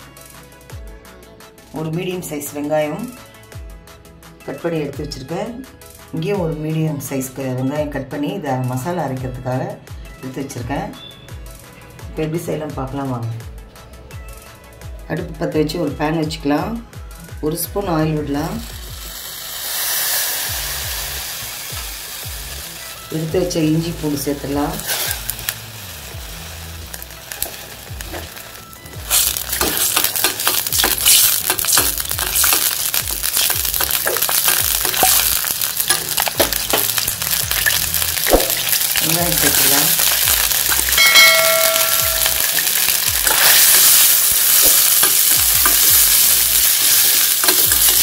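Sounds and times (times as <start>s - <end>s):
garlic and ginger sizzling in oil: 17.5s - 48.0s
spoon stirring onions in oil: 26.8s - 48.0s.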